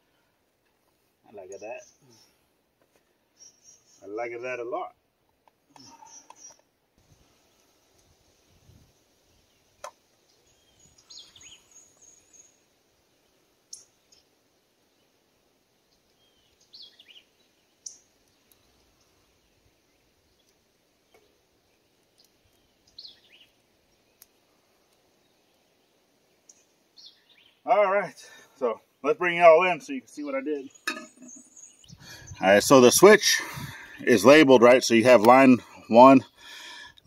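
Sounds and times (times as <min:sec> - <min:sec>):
faint sharp clicks: 0:17.8 - 0:19.0, 0:22.0 - 0:23.0, 0:24.2 - 0:25.1.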